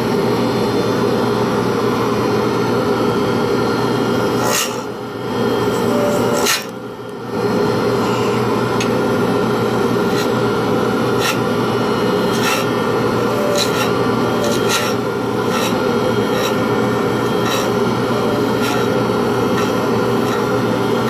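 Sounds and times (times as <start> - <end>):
lathe running: 0.0 - 21.0
scraping rubbing noise: 12.3 - 16.6.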